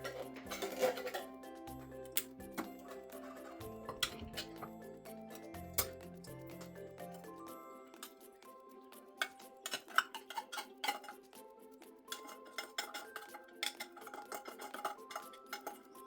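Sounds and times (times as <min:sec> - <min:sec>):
utensil clinking against dishware: 0:00.0 - 0:01.3, 0:02.6 - 0:04.7, 0:09.2 - 0:11.2, 0:12.1 - 0:16.0
soft background music: 0:00.0 - 0:16.0.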